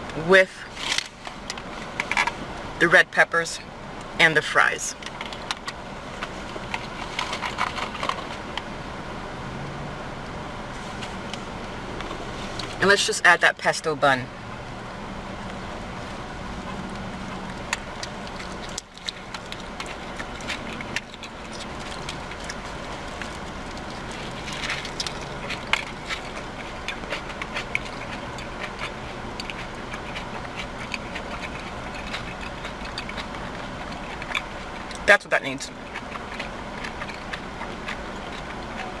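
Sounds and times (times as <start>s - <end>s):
low background hum: 0.0s - 39.0s
chewing and mouth noises: 4.0s - 8.7s, 11.0s - 13.1s, 15.4s - 39.0s
wrapper crinkling: 18.0s - 34.9s.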